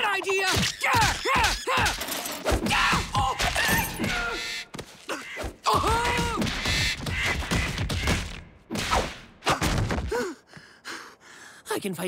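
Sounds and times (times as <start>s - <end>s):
cartoon vocal grunts and cries: 5.0s - 6.4s
quick thuds and knocks: 9.0s - 10.2s.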